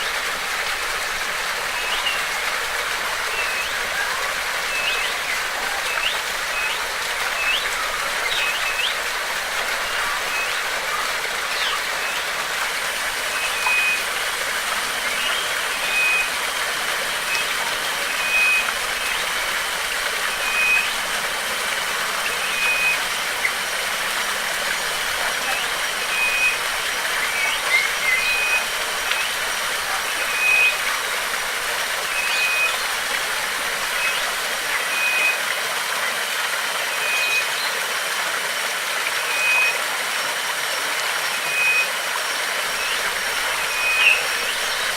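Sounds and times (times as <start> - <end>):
bird calling: 0.0 - 35.4, 42.6 - 44.9
thin high steady tone: 0.0 - 35.4, 42.6 - 44.9
flowing water: 0.0 - 44.9.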